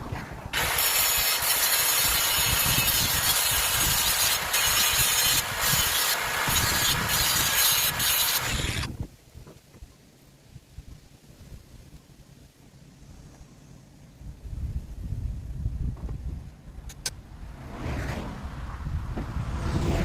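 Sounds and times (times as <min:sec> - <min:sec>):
power grinder grinding metal: 0:00.6 - 0:08.9.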